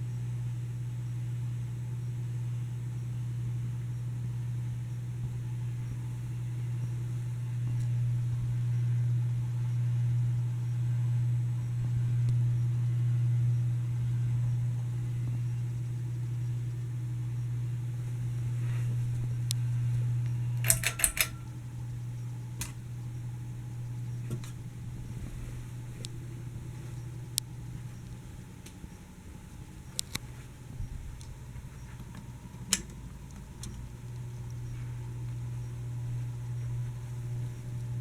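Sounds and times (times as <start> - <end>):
ceiling fan motor humming: 0.0 - 38.0
sharp clicks: 20.2 - 21.6, 29.9 - 30.3.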